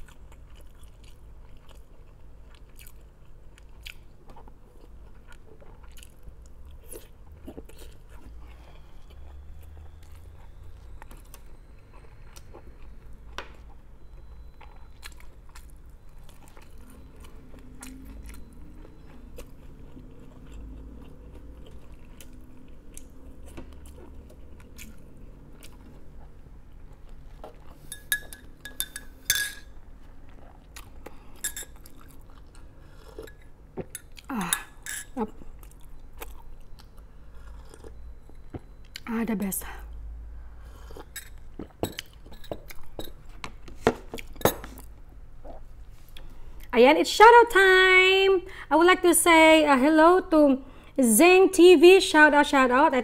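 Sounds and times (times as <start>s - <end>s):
person chewing and crunching food: 0.0s - 39.1s, 40.5s - 46.7s
sharp ringing clinks: 27.9s - 29.7s.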